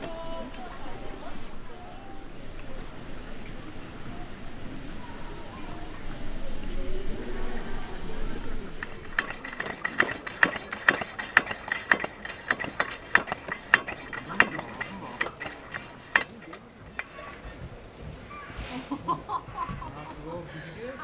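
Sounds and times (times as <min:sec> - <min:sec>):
faint voices: 0:00.0 - 0:21.0
metal utensils clinking: 0:08.8 - 0:17.6.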